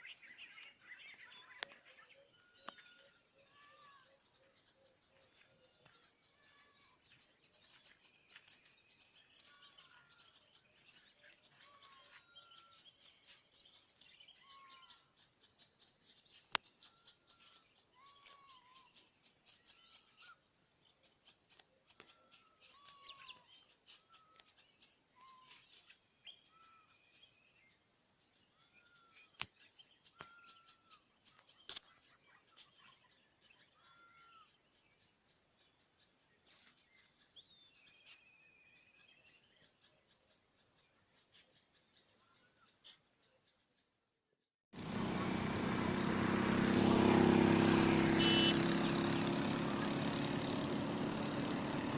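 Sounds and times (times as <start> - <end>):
bird repeating short call: 46.8 - 49.9.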